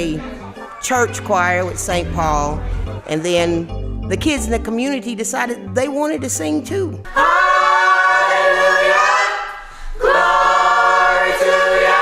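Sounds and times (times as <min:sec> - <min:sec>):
choir singing sustained chords: 0:07.1 - 0:12.0.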